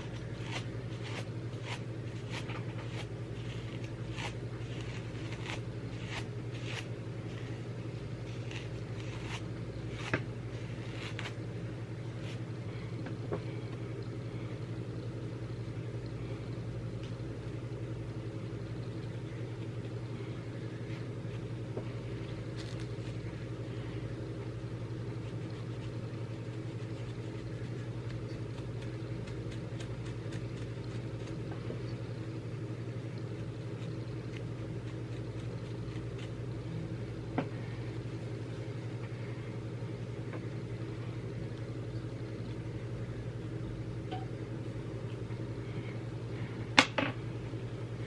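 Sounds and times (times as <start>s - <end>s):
low mechanical hum: 0.0s - 48.0s.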